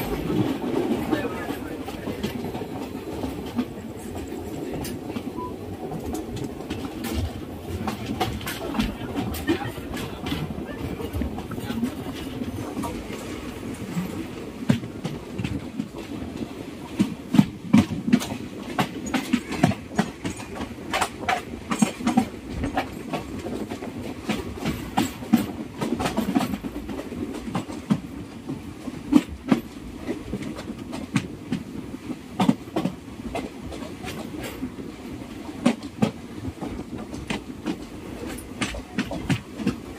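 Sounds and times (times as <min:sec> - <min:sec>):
train rumbling on track: 0:00.0 - 0:39.9
wheels clicking over rails: 0:00.0 - 0:39.9.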